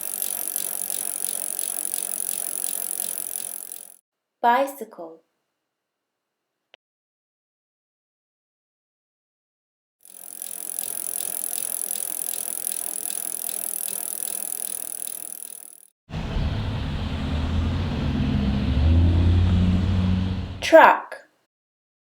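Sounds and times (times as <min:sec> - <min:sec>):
bicycle ticking and hissing: 0:00.0 - 0:04.0, 0:10.0 - 0:18.6
truck engine running: 0:16.1 - 0:20.7.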